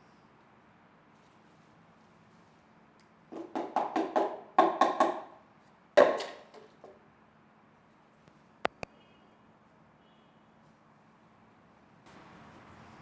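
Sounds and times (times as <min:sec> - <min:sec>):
sharp knocks: 0:03.3 - 0:05.4, 0:06.0 - 0:07.0.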